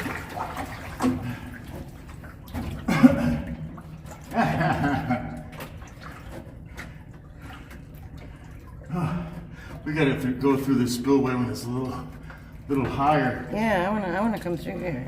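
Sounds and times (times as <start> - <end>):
water sloshing and splashing: 0.0 - 15.0.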